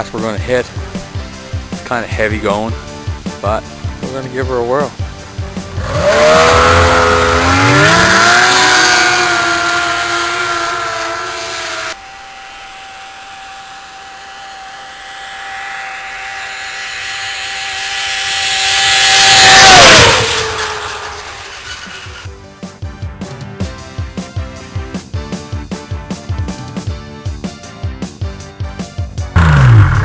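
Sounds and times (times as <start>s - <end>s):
snowmobile engine revving past: 5.6s - 22.3s, 29.4s - 30.0s.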